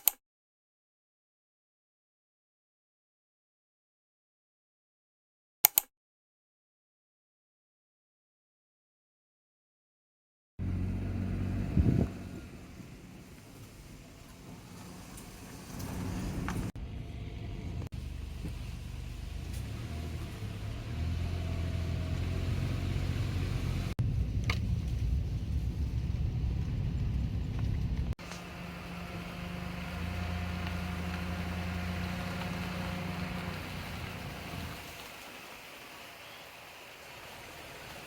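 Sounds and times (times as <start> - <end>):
car engine humming: 10.6 - 35.1
tyre and road noise: 10.6 - 38.0.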